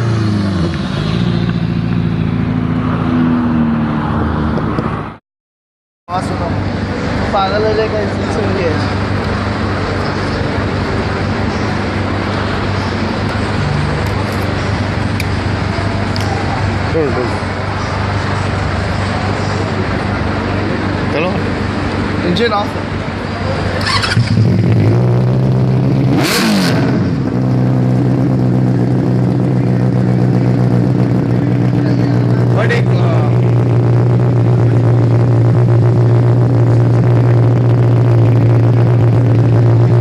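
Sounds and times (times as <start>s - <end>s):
motorcycle engine idling: 27.3s - 40.0s.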